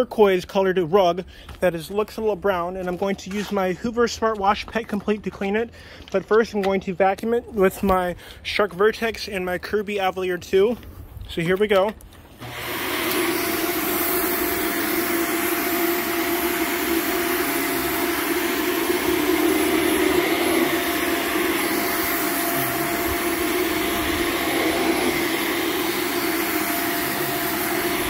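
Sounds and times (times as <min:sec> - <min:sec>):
vacuum cleaner running: 0:12.4 - 0:28.0.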